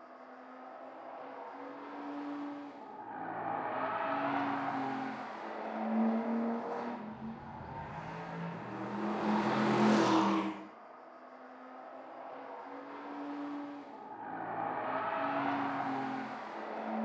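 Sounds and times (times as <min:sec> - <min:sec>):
car engine running hard: 0:00.5 - 0:10.8.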